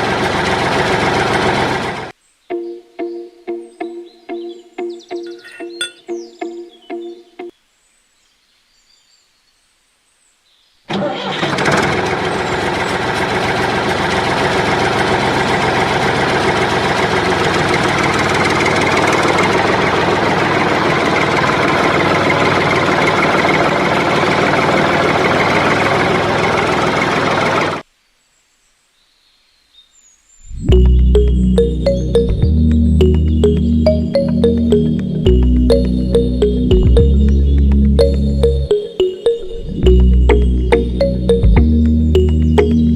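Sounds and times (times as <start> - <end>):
small tractor motor running: 0.0 - 2.1, 10.9 - 27.8.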